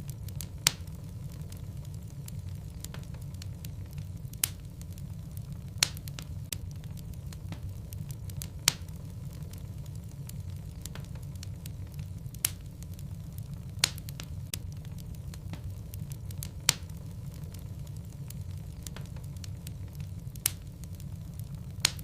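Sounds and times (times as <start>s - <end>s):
fire crackling: 0.0s - 22.0s
fire rumbling: 0.0s - 22.0s
sharp pops from fire: 0.0s - 22.0s.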